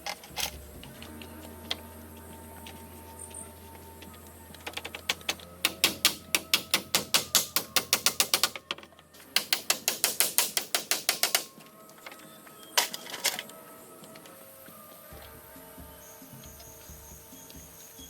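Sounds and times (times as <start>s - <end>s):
rapid hand tool strikes: 5.6s - 8.6s, 9.3s - 11.5s.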